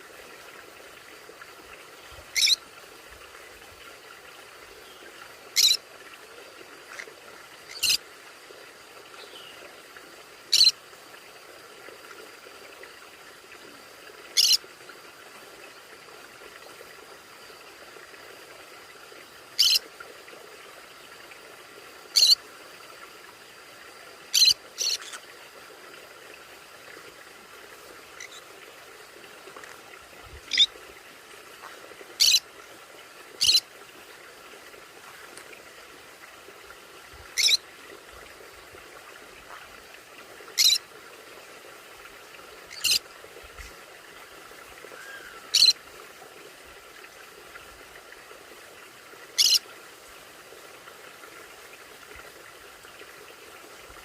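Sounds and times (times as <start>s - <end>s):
conures screeching: 2.4s - 2.6s, 37.4s - 37.6s.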